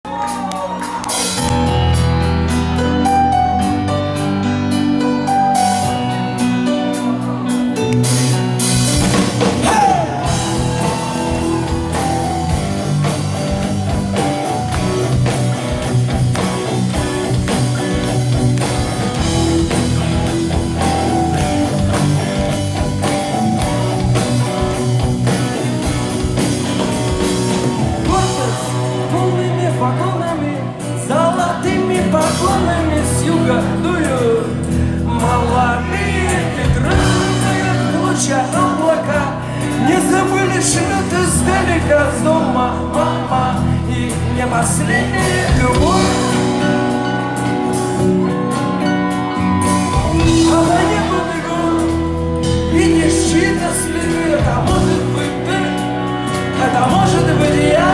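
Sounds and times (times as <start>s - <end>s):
rock band playing: 0.0s - 57.9s
drum kit beat: 0.1s - 30.1s, 31.5s - 41.7s, 44.1s - 57.9s
electric guitar: 0.1s - 57.9s.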